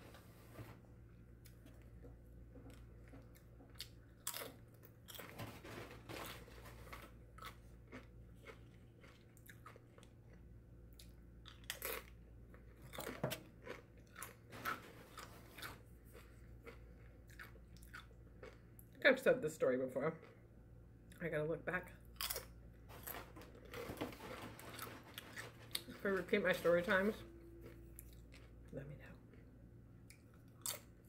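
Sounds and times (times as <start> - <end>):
faint low hum: 0.0 - 31.0
person chewing food: 1.3 - 5.3, 6.9 - 19.0, 27.6 - 28.7, 29.3 - 31.0.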